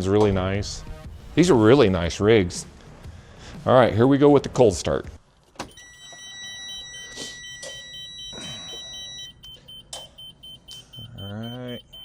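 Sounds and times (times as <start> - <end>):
rapid warning beeps: 5.7 - 12.0
steady warning tone: 5.7 - 12.0.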